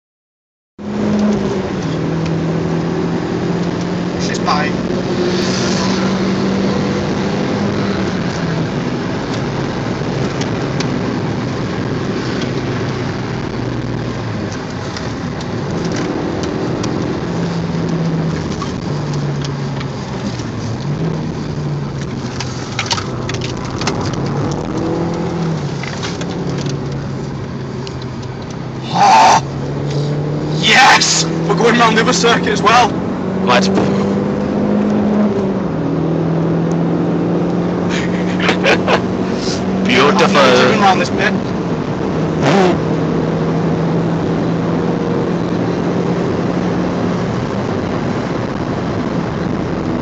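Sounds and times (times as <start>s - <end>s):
car engine at speed: 0.8s - 50.0s
tyre and wind noise: 4.8s - 28.8s.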